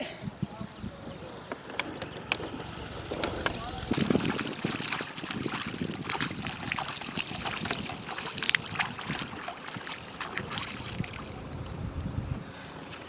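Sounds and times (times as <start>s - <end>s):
water splashing and sloshing: 3.9s - 13.0s.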